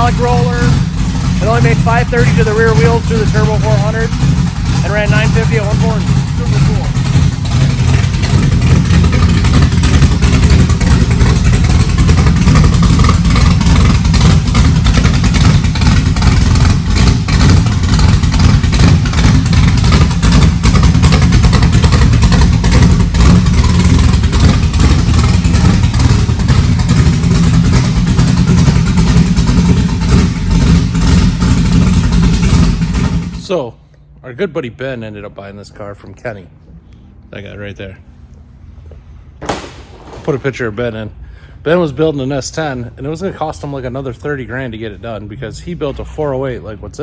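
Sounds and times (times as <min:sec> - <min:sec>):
drag car engine running loudly: 0:00.0 - 0:33.6.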